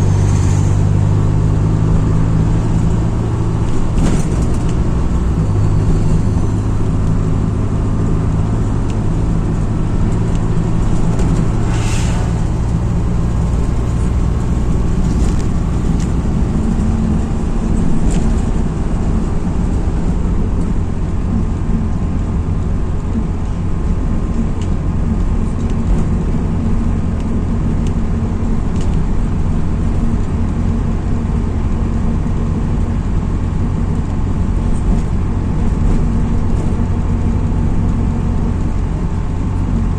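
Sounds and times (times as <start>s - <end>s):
diesel bus engine: 0.0s - 39.9s
road rumble: 0.0s - 39.9s
brief air hiss: 11.5s - 13.0s.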